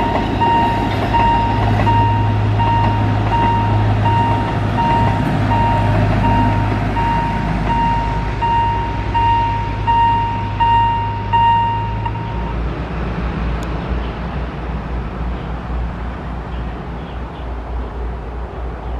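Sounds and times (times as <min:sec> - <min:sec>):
level crossing warning bell beeping: 0:00.0 - 0:12.6.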